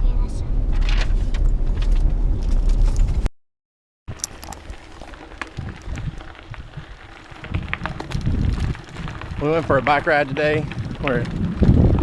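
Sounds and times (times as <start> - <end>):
faint clicks and crackles: 4.1 - 12.0.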